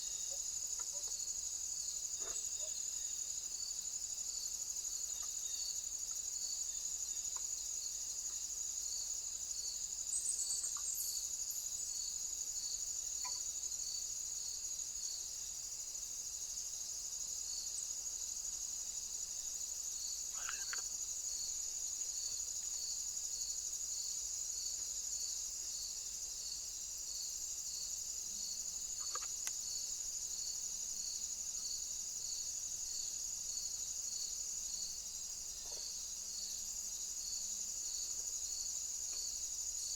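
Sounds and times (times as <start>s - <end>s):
crickets trilling: 0.0s - 39.9s
high cricket chirp: 0.0s - 39.9s
faint short sounds: 20.3s - 20.9s.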